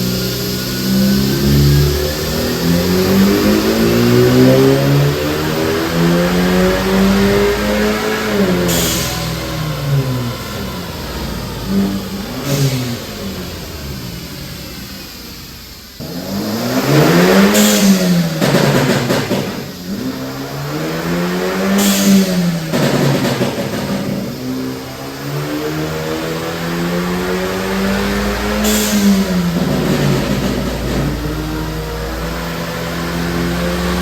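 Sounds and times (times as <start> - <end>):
car engine revving: 0.0 - 34.0
exhaust pops and crackles: 2.3 - 24.7, 28.1 - 32.6.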